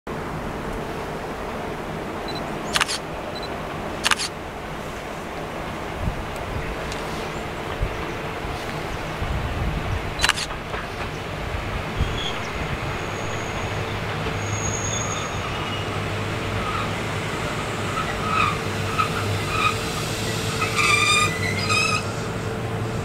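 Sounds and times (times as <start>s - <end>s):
electric train humming: 0.1s - 23.0s
train brakes squealing: 12.0s - 16.0s, 16.6s - 22.5s.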